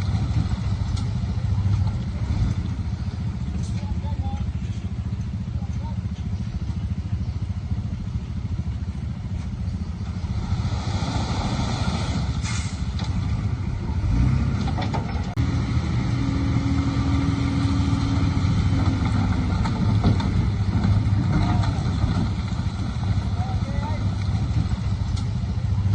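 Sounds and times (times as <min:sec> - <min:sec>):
earthmoving machinery diesel engines: 0:00.0 - 0:25.9
rushing noise: 0:10.2 - 0:13.2.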